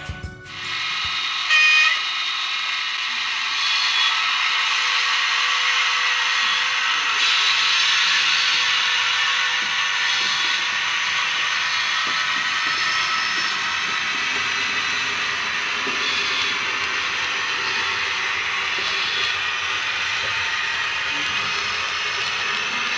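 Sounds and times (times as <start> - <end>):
model train whirring: 0.5 - 22.9.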